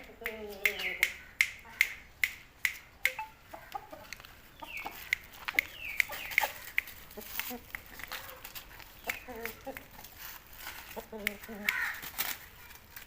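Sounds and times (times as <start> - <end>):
rooster clucking: 3.1 - 10.2, 10.8 - 12.3
sharp clicks: 4.1 - 8.2.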